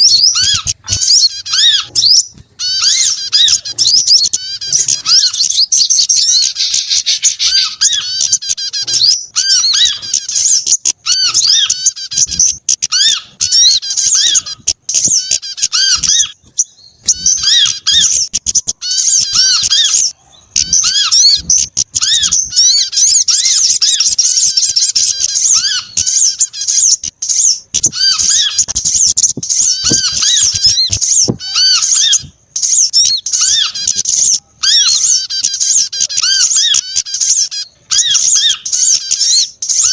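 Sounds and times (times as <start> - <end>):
songbirds chittering and twittering: 0.0 - 39.9
short arched squeak: 7.6 - 37.0.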